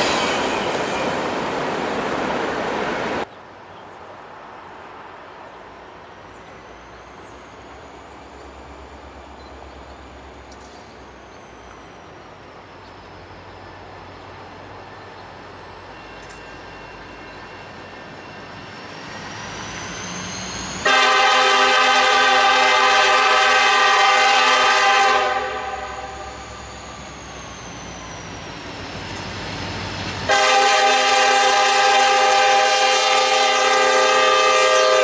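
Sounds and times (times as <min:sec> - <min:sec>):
freight train rumble: 0:00.0 - 0:35.0
locomotive air horn: 0:20.8 - 0:26.4, 0:30.3 - 0:35.0.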